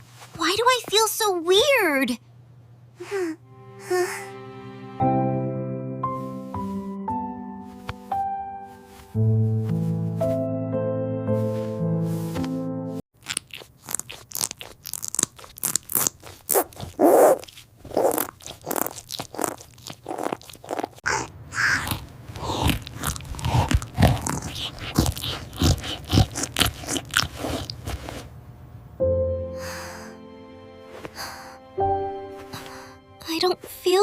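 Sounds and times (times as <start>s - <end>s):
crunching and chewing: 13.2s - 28.3s.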